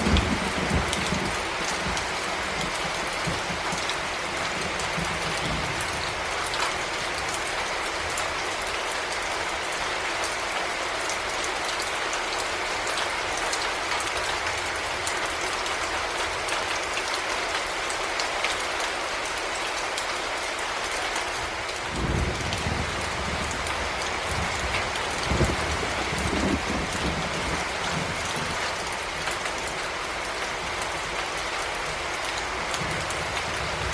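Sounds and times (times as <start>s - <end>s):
raindrops ticking: 0.0s - 10.5s
heavy rain: 0.0s - 33.9s.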